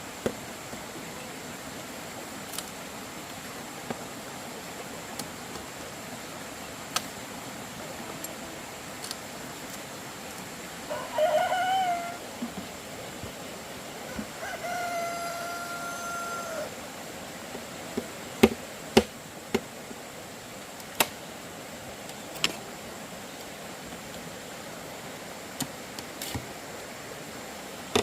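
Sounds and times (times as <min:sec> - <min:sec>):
rooster crowing: 0:10.9 - 0:12.2, 0:14.0 - 0:16.8.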